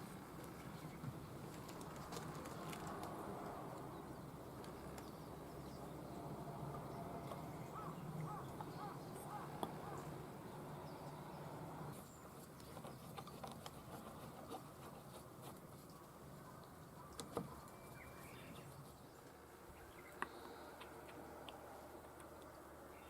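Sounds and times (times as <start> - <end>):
birds calling: 3.8 - 15.0, 15.8 - 23.0.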